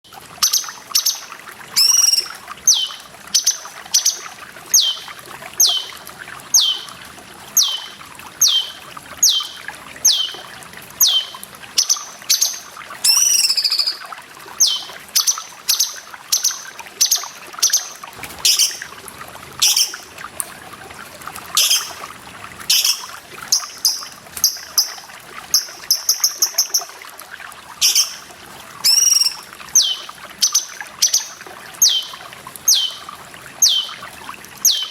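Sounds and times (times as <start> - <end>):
running water hiss: 0.1 - 34.9
bird singing whistled notes: 1.8 - 4.2, 4.8 - 5.9, 6.6 - 6.9, 7.6 - 10.4, 11.0 - 14.0, 14.6 - 18.8, 21.6 - 22.0, 22.7 - 24.0, 28.8 - 33.0, 33.6 - 34.0, 34.6 - 34.9.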